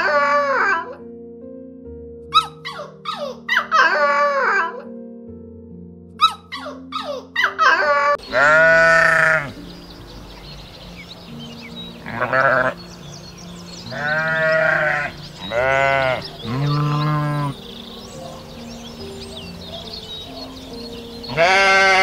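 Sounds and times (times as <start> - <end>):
sheep bleating: 8.3 - 9.6, 12.0 - 12.8, 13.9 - 17.6, 21.3 - 22.0.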